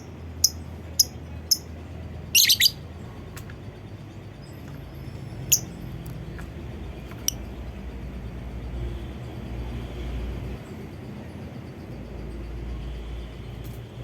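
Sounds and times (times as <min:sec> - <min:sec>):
bird high chirps: 0:00.0 - 0:01.7, 0:02.3 - 0:02.8.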